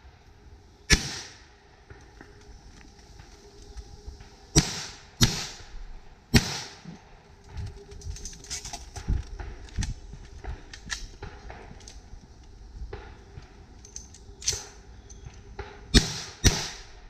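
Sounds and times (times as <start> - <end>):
loud gunshots with echo: 0.9 - 1.4, 4.6 - 5.6, 6.3 - 6.8, 15.9 - 16.9.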